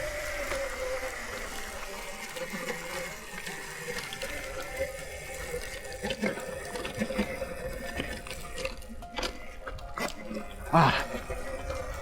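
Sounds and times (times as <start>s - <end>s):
electric motor whine: 0.0s - 9.1s.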